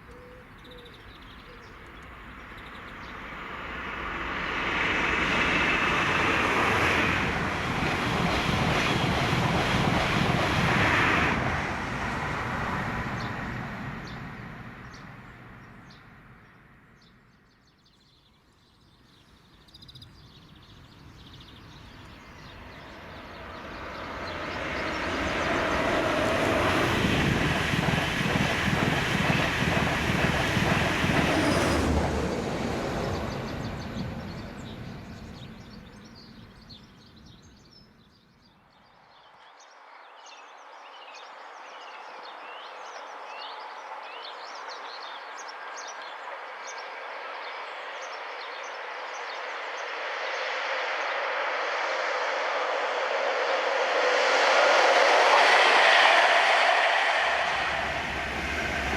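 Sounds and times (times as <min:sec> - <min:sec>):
approaching train rush: 0:01.0 - 0:17.7, 0:18.4 - 0:58.9
train passing at speed: 0:01.0 - 0:17.8, 0:18.4 - 0:58.9
birds chirping: 0:13.1 - 0:31.3.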